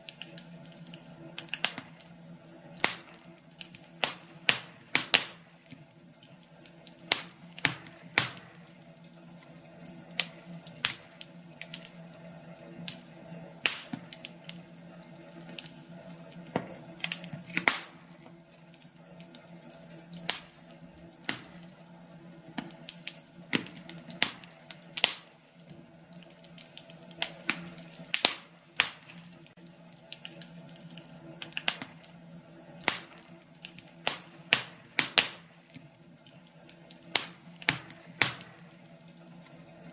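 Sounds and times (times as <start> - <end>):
faint steady hum: 0.0 - 39.9
fire pops and snaps: 0.0 - 39.9
wood fire crackling: 0.0 - 39.9.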